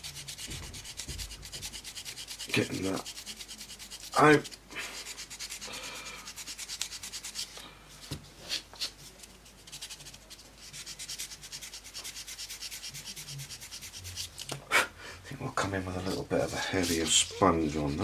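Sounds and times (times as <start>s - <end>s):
sanding sponge rubbing plastic: 0.0s - 7.6s, 9.6s - 14.4s, 15.8s - 18.0s
sharp scrapes: 15.9s - 18.0s.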